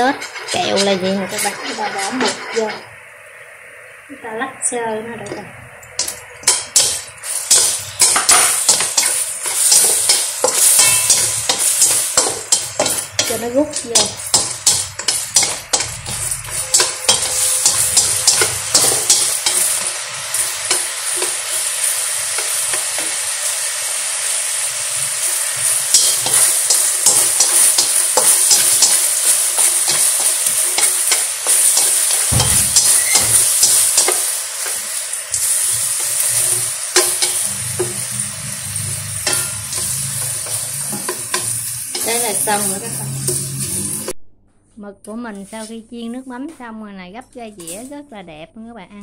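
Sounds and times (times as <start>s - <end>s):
chopsticks scraping a pan: 0.0s - 2.9s, 6.0s - 44.1s
food sizzling in a wok: 0.0s - 44.2s.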